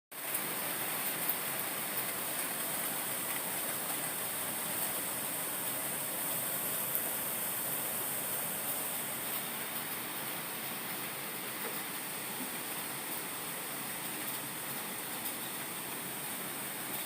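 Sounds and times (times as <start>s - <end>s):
heavy rain hiss: 0.2s - 17.0s.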